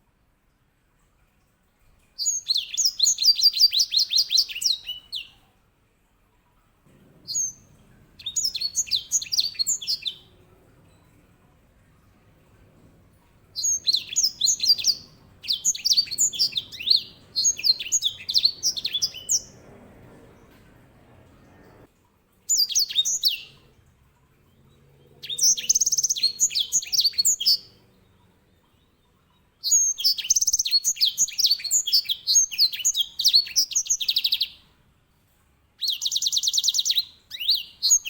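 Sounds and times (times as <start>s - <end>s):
finch trilling song: 2.2s - 5.4s, 7.2s - 11.1s, 13.4s - 20.6s, 25.2s - 27.8s, 29.6s - 34.6s, 35.8s - 38.0s.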